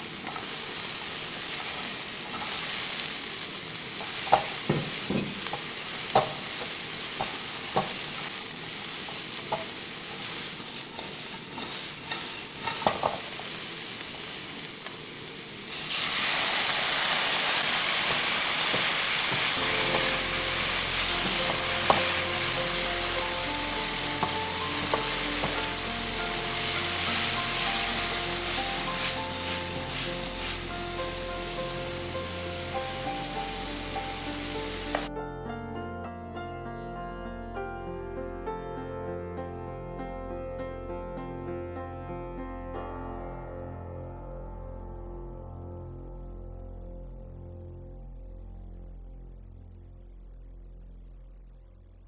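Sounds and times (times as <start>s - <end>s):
soft background music: 0.0s - 13.7s, 16.2s - 52.0s
stir-fry sizzling: 0.0s - 35.1s.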